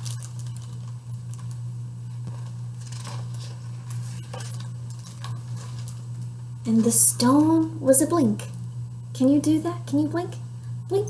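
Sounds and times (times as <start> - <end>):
steady low hum: 0.0 - 11.0
book pages rustling and turning: 2.2 - 6.0.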